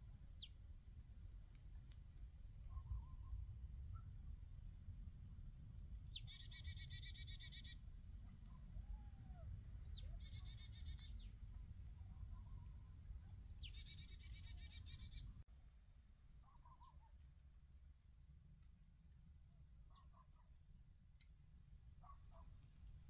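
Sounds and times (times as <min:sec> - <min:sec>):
songbird trilling: 0:06.1 - 0:07.8, 0:09.3 - 0:11.3, 0:13.4 - 0:15.2.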